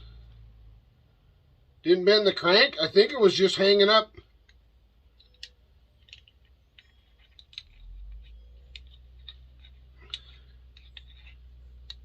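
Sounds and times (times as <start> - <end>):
small metal parts clicking: 4.3 - 12.0.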